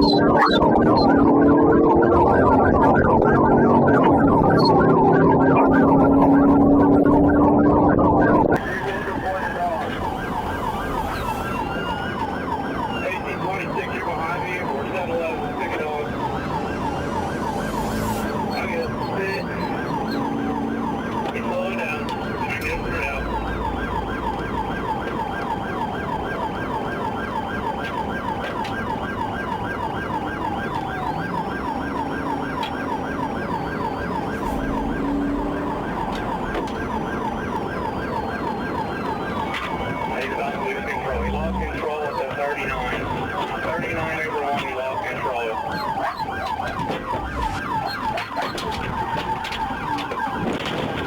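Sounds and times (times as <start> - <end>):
police siren yelping: 0.0 - 51.0
car driving rumble: 27.4 - 51.0.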